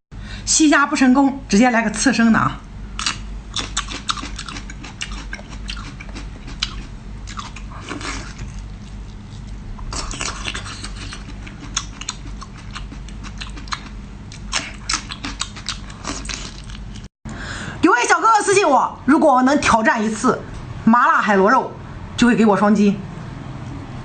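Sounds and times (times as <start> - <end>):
wet chewing and mouth smacks: 3.0 - 17.1.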